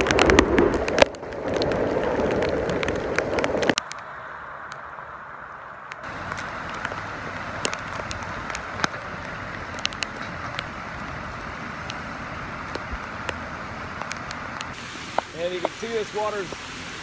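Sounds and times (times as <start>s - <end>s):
rain falling on water: 0.0s - 17.0s
raindrops ticking near microphone: 0.0s - 17.0s
vehicle wading through floodwater: 3.7s - 17.0s.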